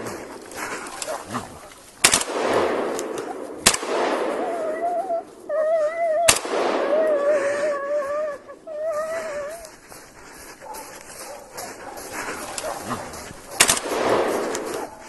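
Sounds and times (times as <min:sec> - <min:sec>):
close gunshots: 0:02.0 - 0:04.8, 0:06.3 - 0:07.2, 0:13.6 - 0:14.9
dog whining: 0:04.5 - 0:09.7.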